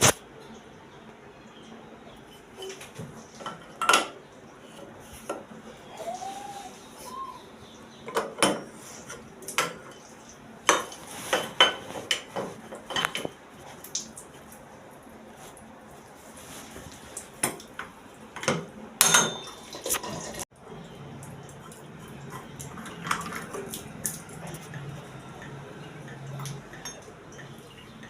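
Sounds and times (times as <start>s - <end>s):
metal fittings and tools clinking: 18.4s - 20.4s, 22.3s - 28.0s.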